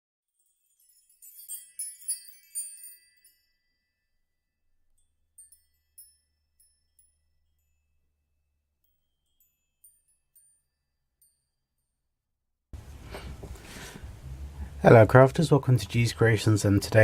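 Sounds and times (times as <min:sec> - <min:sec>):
high tinkling chimes: 0:00.3 - 0:11.9.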